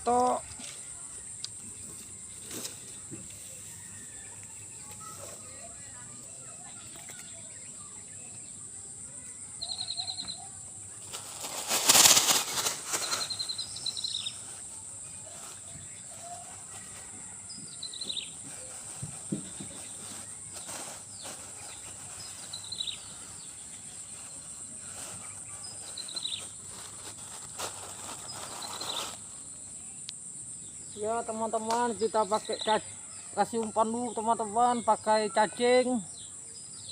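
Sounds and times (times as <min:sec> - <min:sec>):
loud rustling: 0:11.0 - 0:29.3.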